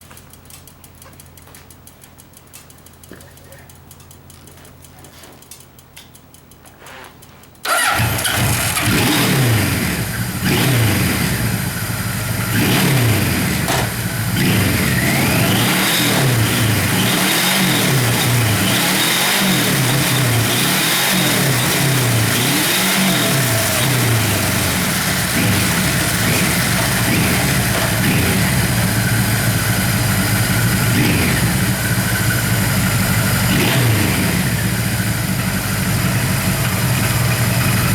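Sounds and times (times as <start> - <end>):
motorcycle engine revving: 7.6 - 37.9.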